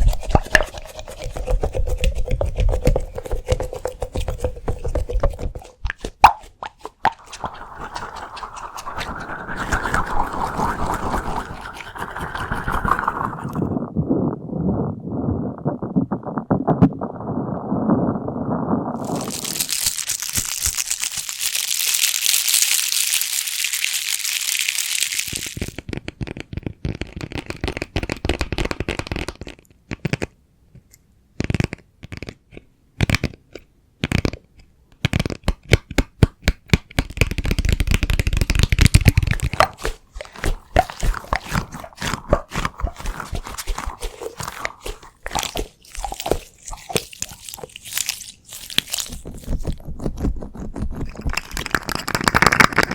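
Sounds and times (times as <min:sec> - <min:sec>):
hissing crinkle: 0:18.9 - 0:25.8, 0:38.4 - 0:49.8
taps clicks and crackles: 0:25.3 - 0:52.9.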